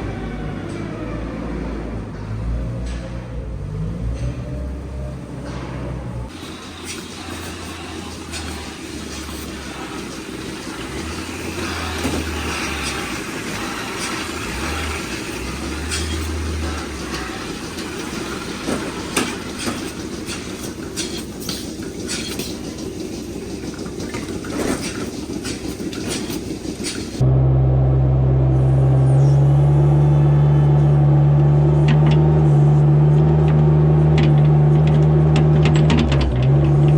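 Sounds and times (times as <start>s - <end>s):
knocks and clanks: 0.6s - 27.2s, 31.5s - 32.5s, 33.2s - 36.9s
mechanical running noise: 6.3s - 27.2s
low hum: 27.2s - 36.9s.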